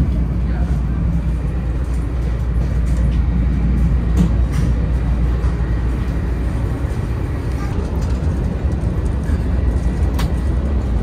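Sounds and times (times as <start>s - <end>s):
train cabin rumble: 0.0s - 11.0s
faint clicks and rattles: 7.5s - 10.8s.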